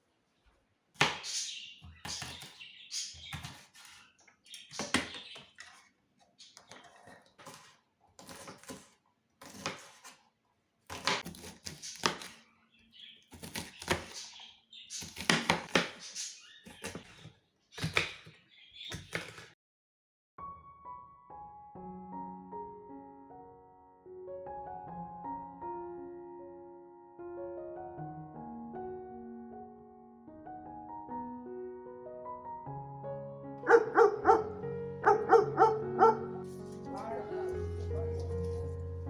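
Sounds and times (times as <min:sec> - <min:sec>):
kitchen utensils and dishes clattering: 0:01.0 - 0:10.1, 0:18.9 - 0:19.6
rustling: 0:36.5 - 0:39.0.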